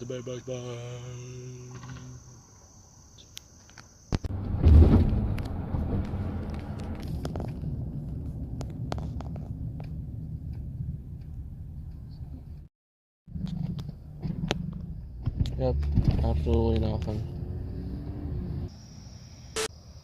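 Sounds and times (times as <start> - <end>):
low steady rumble: 4.3 - 12.7.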